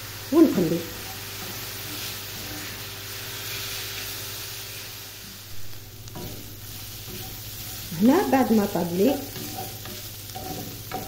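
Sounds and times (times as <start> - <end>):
onion and chicken sizzling in pan: 0.0 - 11.0.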